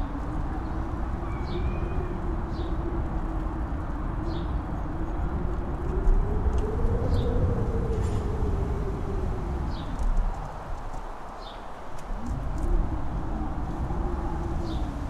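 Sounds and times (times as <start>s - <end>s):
strong wind howling: 0.0s - 15.0s.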